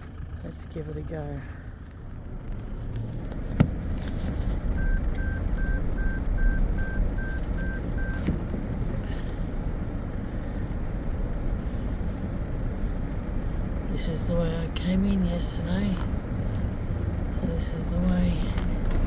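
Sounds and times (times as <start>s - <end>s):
vehicle engine running low: 0.0s - 19.0s
electronic warning beeps: 4.8s - 8.3s.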